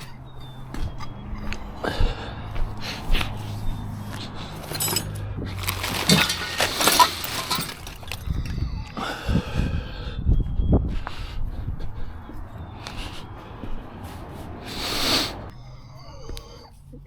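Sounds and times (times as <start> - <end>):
metal tools clinking and rattling: 4.1 - 8.9.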